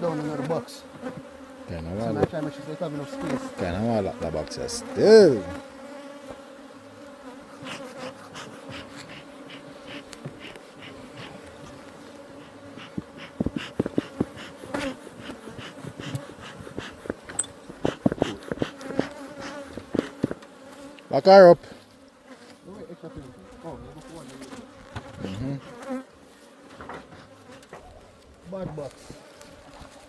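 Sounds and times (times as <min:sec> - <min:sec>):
bees humming: 0:00.0 - 0:28.0
hive frames knocking and clicking: 0:02.0 - 0:04.6, 0:07.7 - 0:21.0.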